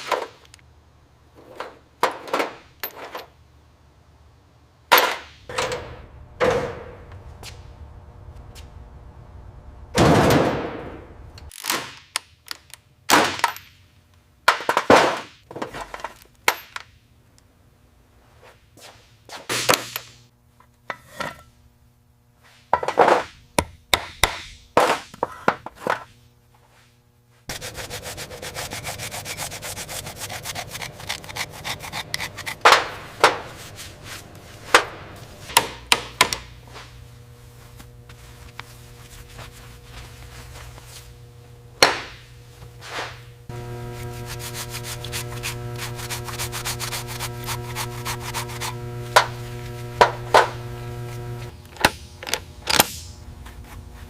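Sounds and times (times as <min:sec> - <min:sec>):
rasping like sanding: 0:27.5 - 0:32.6, 0:43.6 - 0:49.8.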